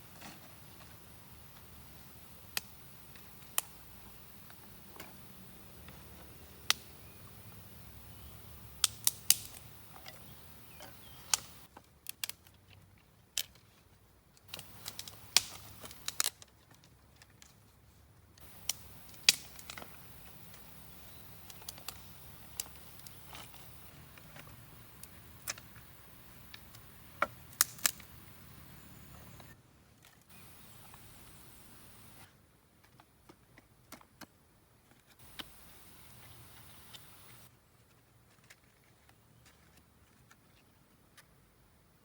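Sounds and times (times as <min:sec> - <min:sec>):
sharp clicks and snaps: 0:08.8 - 0:10.2, 0:11.2 - 0:12.5, 0:14.5 - 0:16.4, 0:18.4 - 0:20.7, 0:21.4 - 0:23.8, 0:27.5 - 0:28.1.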